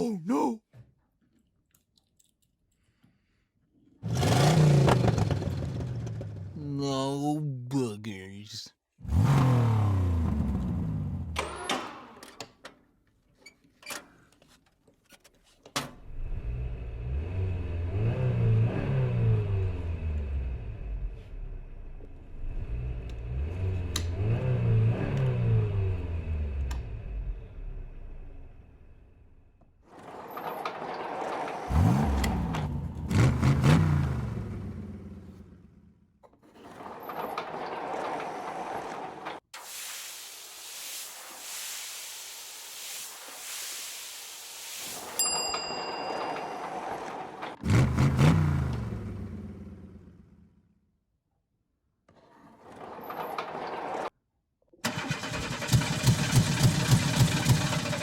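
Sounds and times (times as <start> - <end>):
voice-like call: 0.0 - 0.6
car engine revving: 4.0 - 6.5, 9.0 - 11.4, 16.3 - 21.0, 31.7 - 35.6, 47.6 - 50.4.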